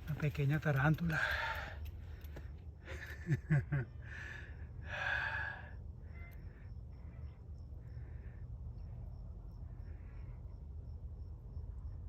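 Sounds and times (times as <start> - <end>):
heavy exhalations: 1.1 - 2.6.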